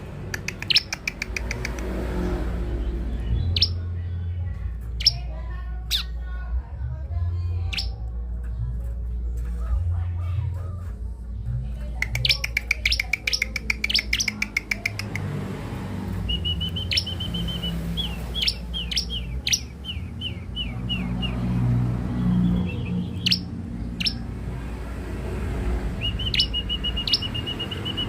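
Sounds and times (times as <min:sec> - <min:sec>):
bird chirping and trilling: 0:00.2 - 0:04.0, 0:04.9 - 0:06.2, 0:07.6 - 0:08.1, 0:12.0 - 0:15.4, 0:16.1 - 0:24.5, 0:25.8 - 0:28.0.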